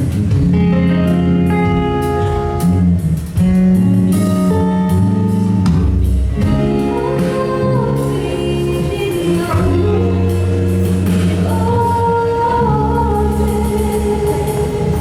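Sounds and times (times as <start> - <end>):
plucked guitar: 0.0 - 15.0.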